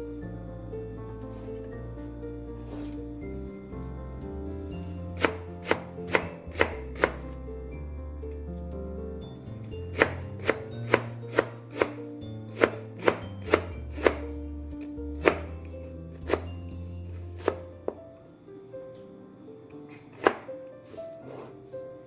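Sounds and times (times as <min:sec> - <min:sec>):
knife chopping on cutting board: 0:05.2 - 0:07.2, 0:09.9 - 0:14.3, 0:15.2 - 0:15.5, 0:16.2 - 0:16.5, 0:17.4 - 0:17.6, 0:20.2 - 0:20.5.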